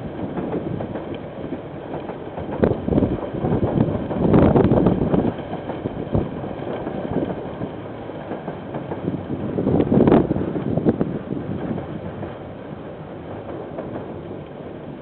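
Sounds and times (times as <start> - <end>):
train wheels clattering on rails: 0.0 - 15.0
wind buffeting microphone: 0.0 - 15.0.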